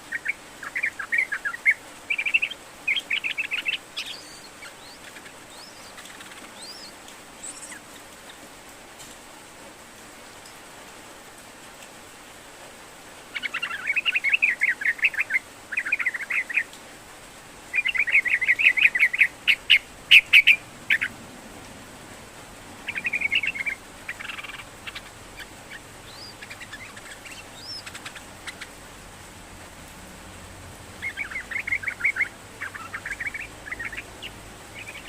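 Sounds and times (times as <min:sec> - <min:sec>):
bird chattering song: 0:00.0 - 0:08.4, 0:13.3 - 0:16.7, 0:17.7 - 0:21.1, 0:22.8 - 0:28.8, 0:31.0 - 0:35.0.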